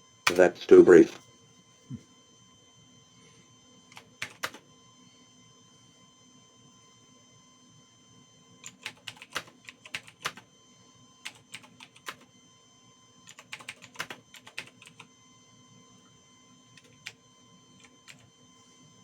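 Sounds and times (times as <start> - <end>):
faint electronic hum: 0.0 - 19.0
computer keyboard typing: 0.3 - 0.6, 4.0 - 4.6, 8.6 - 10.4, 11.2 - 12.2, 13.3 - 15.1, 16.8 - 17.2, 17.8 - 18.3.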